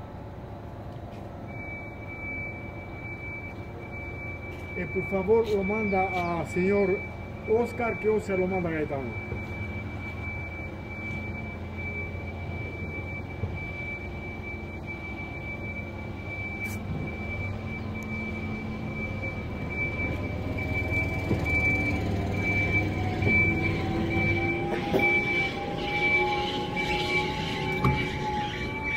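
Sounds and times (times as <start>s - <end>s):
train cars rolling on rails: 0.0s - 28.9s
high beeps: 1.5s - 28.9s
rising motor whine: 15.1s - 28.9s.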